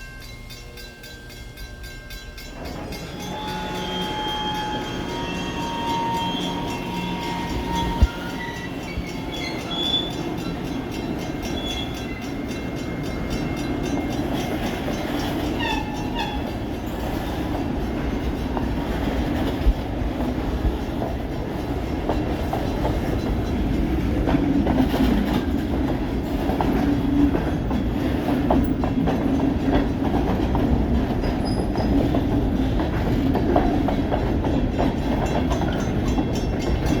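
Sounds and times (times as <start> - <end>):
freight train rumbling past: 0.0 - 37.0
wheels clattering on rails: 1.7 - 37.0
high-pitched wheel squeals: 2.8 - 10.4.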